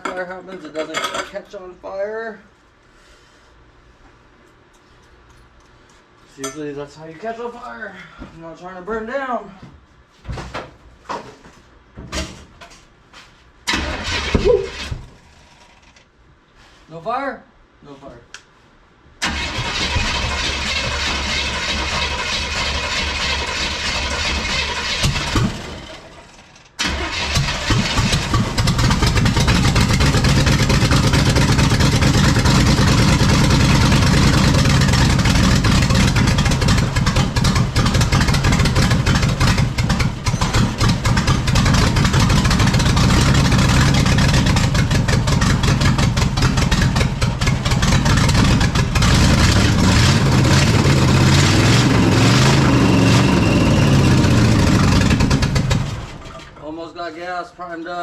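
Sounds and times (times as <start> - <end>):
engine starter cranking: 13.7 - 15.0, 19.2 - 31.1.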